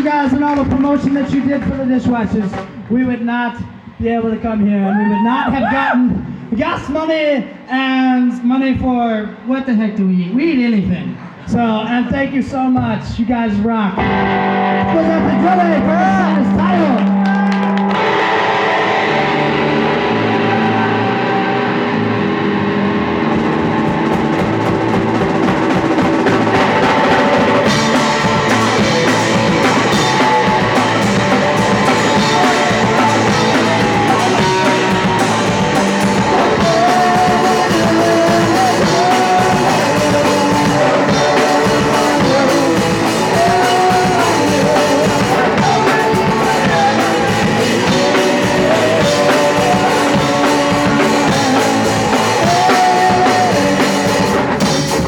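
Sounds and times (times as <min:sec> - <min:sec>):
punk rock band playing: 0:14.0 - 0:55.0
drum kit and cymbals: 0:23.3 - 0:55.0.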